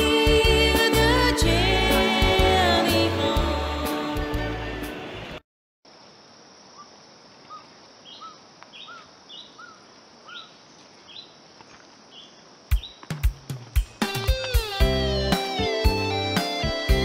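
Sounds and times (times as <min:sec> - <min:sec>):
background hiss: 0:00.0 - 0:17.0
high bird chirps: 0:07.5 - 0:11.4, 0:12.1 - 0:13.4.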